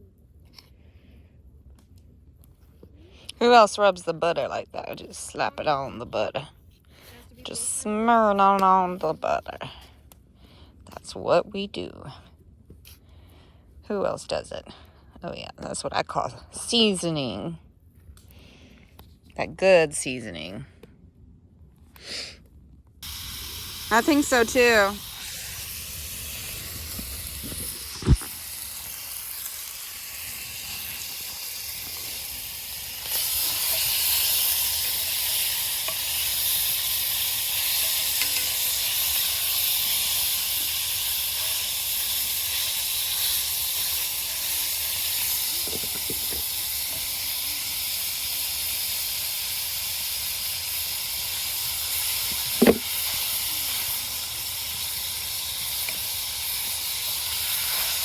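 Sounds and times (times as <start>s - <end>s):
food sizzling in a pan: 23.0s - 58.0s.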